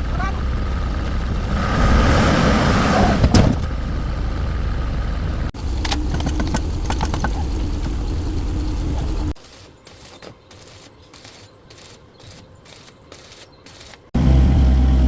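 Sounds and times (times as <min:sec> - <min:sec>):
heavy vehicle engine running: 0:00.0 - 0:09.4, 0:14.2 - 0:15.0.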